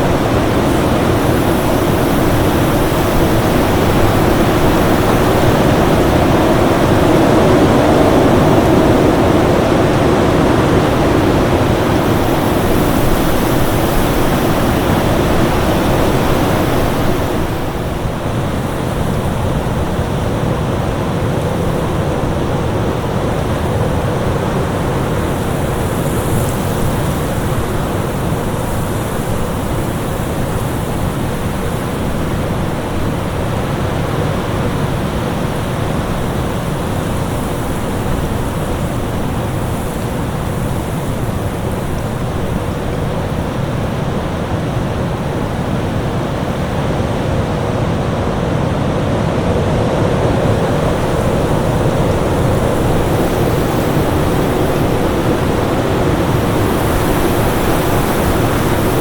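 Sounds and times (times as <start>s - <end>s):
storm wind rushing: 0.0s - 59.0s.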